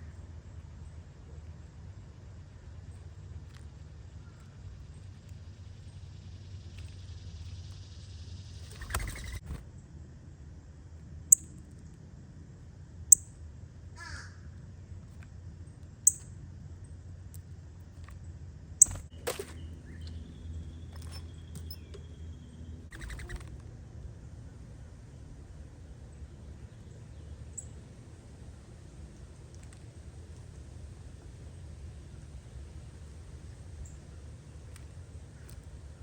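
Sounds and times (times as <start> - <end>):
rough low bird calls: 18.8 - 23.7.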